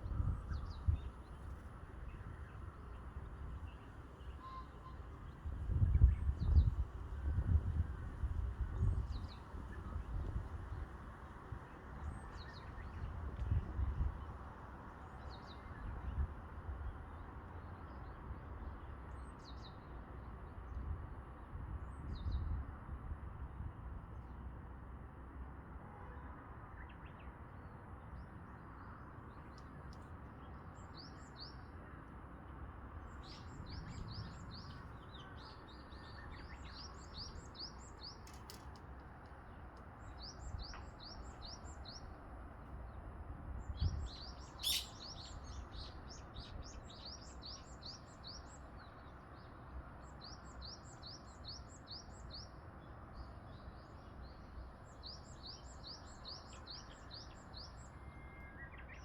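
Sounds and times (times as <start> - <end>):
songbird chirping: 33.0 - 42.2, 43.8 - 59.0.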